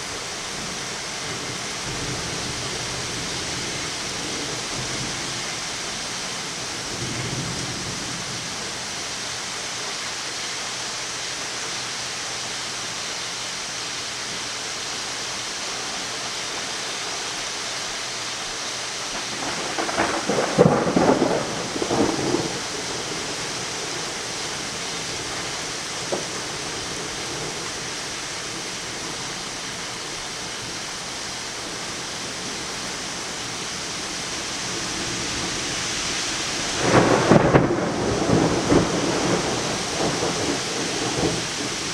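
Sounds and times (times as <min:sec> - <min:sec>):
steady rain falling: 0:00.0 - 0:41.9
crackling thunder: 0:19.1 - 0:29.4, 0:34.7 - 0:41.9.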